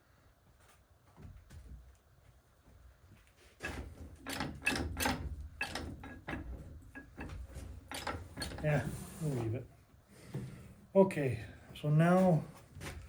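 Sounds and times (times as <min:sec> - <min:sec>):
transmission shaft knocking and clattering: 0:03.6 - 0:08.6.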